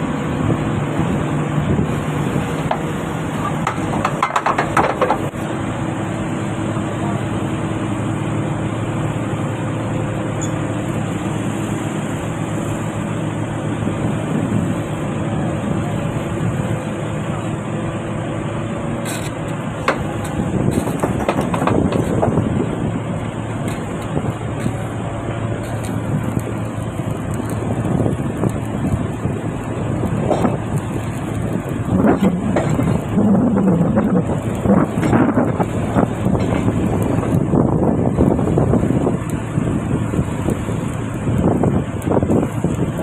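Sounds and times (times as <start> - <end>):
diesel engine running: 0.0 - 43.0
metallic knocks and clatters: 3.5 - 5.3, 20.7 - 22.3.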